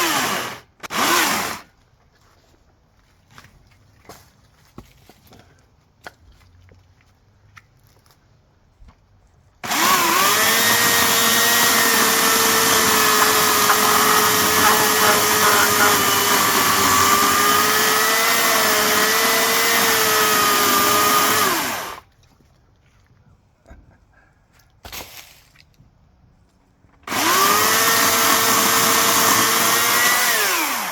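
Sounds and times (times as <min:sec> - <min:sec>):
electric chainsaw whining: 0:00.0 - 0:01.7, 0:09.6 - 0:22.0, 0:27.0 - 0:30.9.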